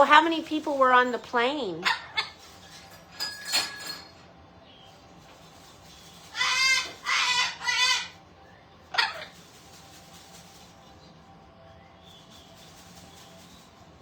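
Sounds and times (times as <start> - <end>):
parrot wavering calls: 6.3 - 8.2, 8.9 - 9.3.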